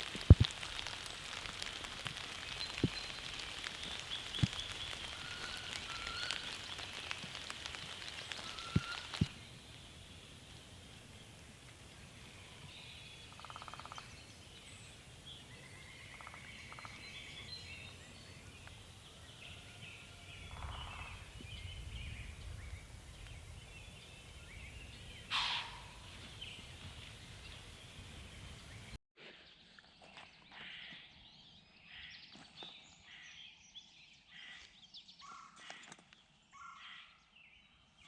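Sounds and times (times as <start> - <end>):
low bird calls: 0.2 - 29.0
songbirds chirping and singing: 2.4 - 38.0
loud bird call: 25.3 - 26.1.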